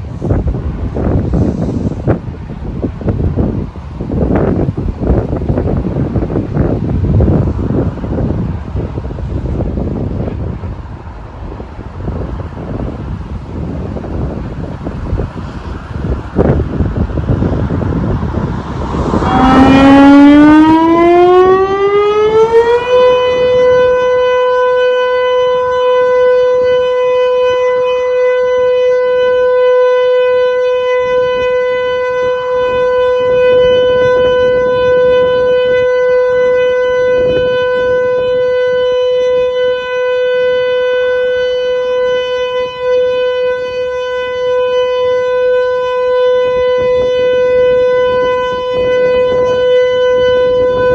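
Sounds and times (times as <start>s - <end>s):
wind noise on microphone: 0.0s - 50.9s
siren winding up: 18.7s - 24.0s.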